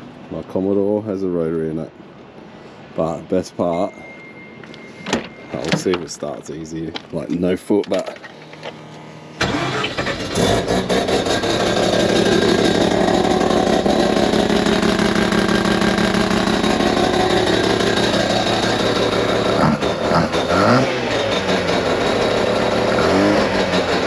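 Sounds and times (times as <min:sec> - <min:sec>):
rotary engine starting and idling: 0:08.2 - 0:24.0.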